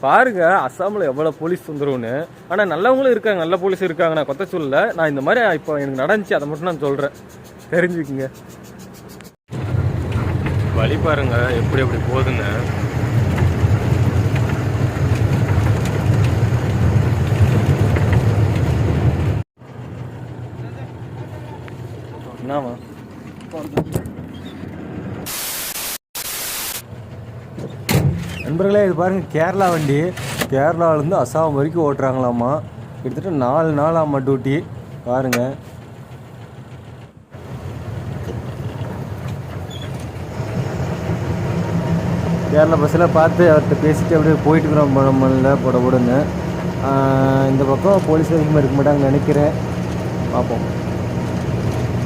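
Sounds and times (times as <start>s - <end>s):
truck diesel engine rumbling: 0.0s - 25.2s, 26.8s - 52.0s
road noise: 0.0s - 52.0s.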